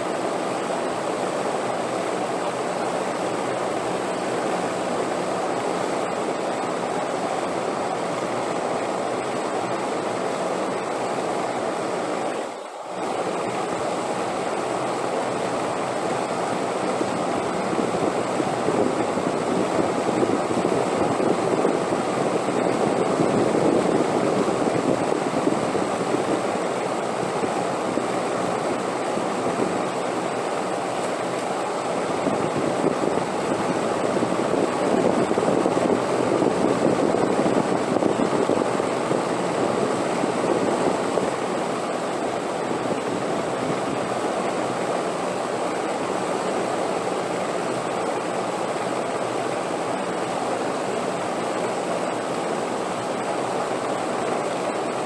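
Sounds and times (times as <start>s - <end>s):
rushing wind: 15.3s - 46.8s.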